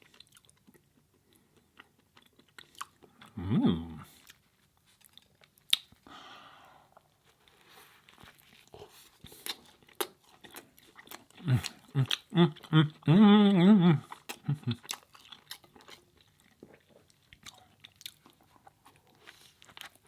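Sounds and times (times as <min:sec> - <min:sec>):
person chewing food: 0:00.0 - 0:03.4, 0:04.0 - 0:06.1, 0:06.9 - 0:20.0
person humming: 0:03.3 - 0:04.1, 0:11.4 - 0:14.8
soft breathy hiss: 0:06.0 - 0:07.0.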